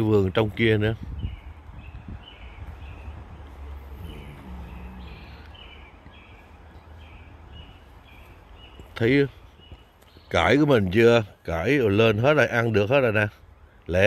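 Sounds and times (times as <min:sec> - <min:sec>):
wind rumble on microphone: 0:00.0 - 0:08.8
small bird singing: 0:00.6 - 0:12.9.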